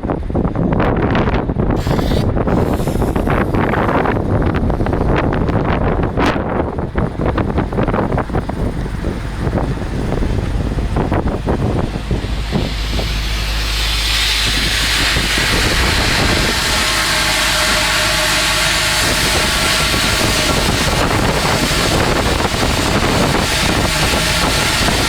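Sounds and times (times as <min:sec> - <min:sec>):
wind buffeting microphone: 0:00.0 - 0:25.0
welding arc hissing crackle: 0:11.3 - 0:25.0.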